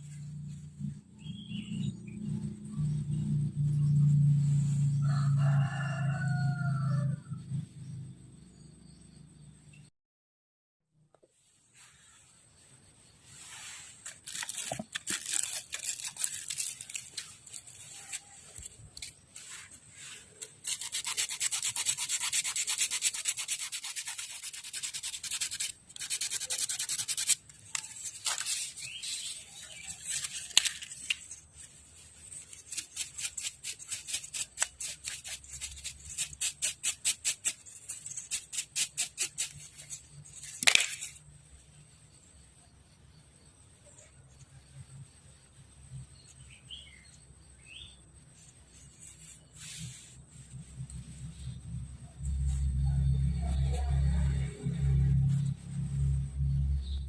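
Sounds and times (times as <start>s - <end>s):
rhythmic hand scraping strokes: 0.0s - 5.4s, 11.4s - 42.6s, 48.2s - 57.0s.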